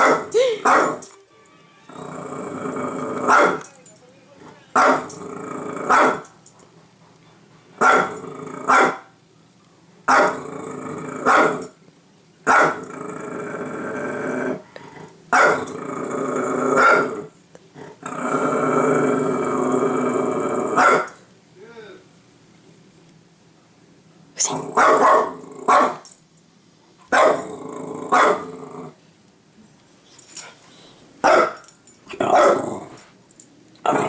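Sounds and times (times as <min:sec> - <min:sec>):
dog barking: 0:00.0 - 0:01.0, 0:03.3 - 0:03.7, 0:04.8 - 0:05.1, 0:05.9 - 0:06.3, 0:07.8 - 0:09.1, 0:10.1 - 0:10.4, 0:11.3 - 0:11.6, 0:12.5 - 0:12.8, 0:15.3 - 0:15.7, 0:16.8 - 0:17.1, 0:20.8 - 0:21.2, 0:24.7 - 0:26.0, 0:27.1 - 0:27.4, 0:28.1 - 0:28.5, 0:31.2 - 0:31.6, 0:32.3 - 0:32.6
dog growling: 0:01.9 - 0:06.2, 0:07.8 - 0:09.0, 0:10.1 - 0:11.6, 0:12.7 - 0:21.1, 0:24.4 - 0:25.9, 0:27.3 - 0:29.0, 0:32.1 - 0:33.1, 0:33.8 - 0:34.0.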